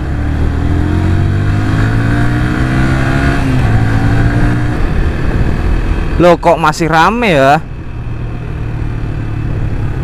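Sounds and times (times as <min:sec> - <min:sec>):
motorcycle engine accelerating: 0:00.0 - 0:06.5.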